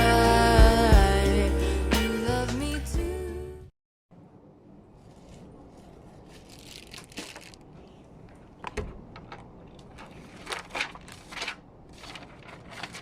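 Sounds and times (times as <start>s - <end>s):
rustling and crinkling handling: 5.0s - 13.0s.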